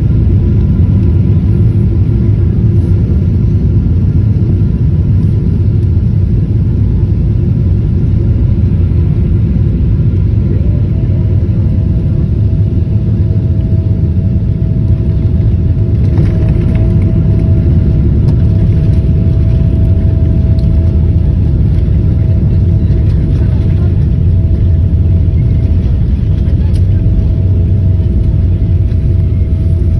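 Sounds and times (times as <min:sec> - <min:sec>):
airliner cabin rumble: 0:00.0 - 0:29.9
high hum: 0:06.7 - 0:29.9.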